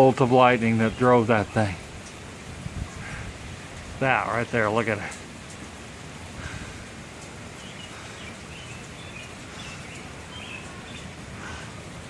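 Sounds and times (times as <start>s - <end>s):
outdoor background hiss: 0.0s - 12.0s
faint bird chirps: 7.6s - 11.8s.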